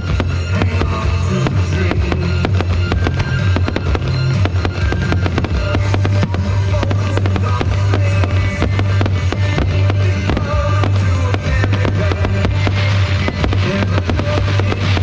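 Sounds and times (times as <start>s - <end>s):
fireworks bangs and crackles: 0.0s - 15.0s
loud music with deep bass: 0.0s - 15.0s.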